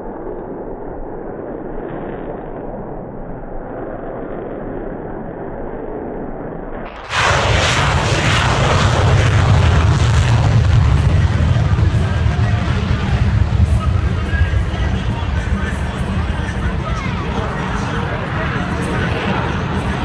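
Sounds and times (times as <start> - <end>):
sharp crack: 6.9 - 11.8.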